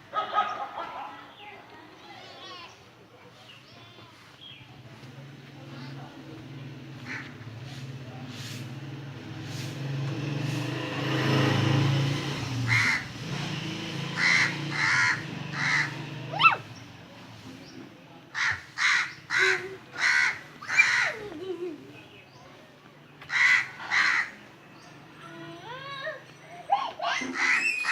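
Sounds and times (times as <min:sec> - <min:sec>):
harsh animal calls: 0:12.7 - 0:13.2, 0:14.1 - 0:16.7, 0:18.3 - 0:21.2.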